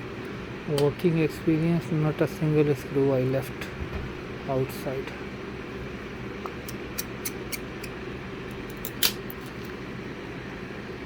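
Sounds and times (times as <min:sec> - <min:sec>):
room hum: 0:00.0 - 0:11.0.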